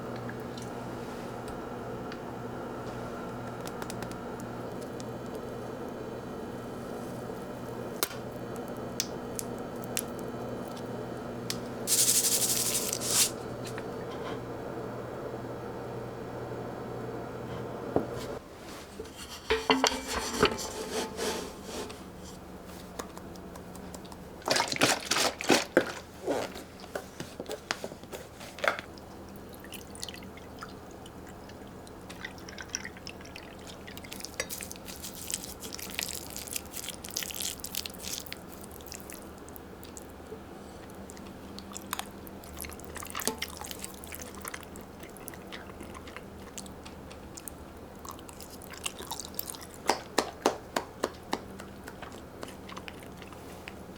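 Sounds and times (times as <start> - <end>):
wet dripping sounds: 28.8 - 53.8
chewing: 31.5 - 53.9.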